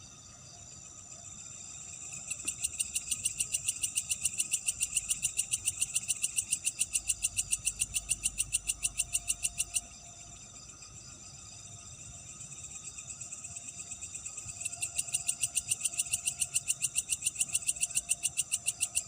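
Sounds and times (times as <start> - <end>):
insect chorus: 0.0 - 19.0
insect rapid pulsed call: 0.0 - 19.0.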